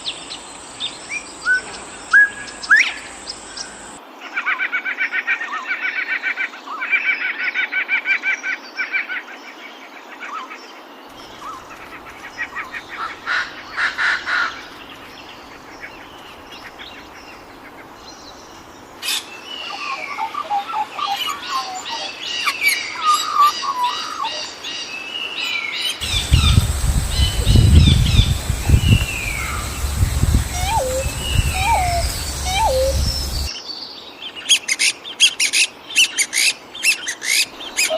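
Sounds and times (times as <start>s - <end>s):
birds chirping and calling: 26.0s - 33.5s
fast trill of chirps: 26.0s - 33.5s
low rumble: 26.0s - 33.5s.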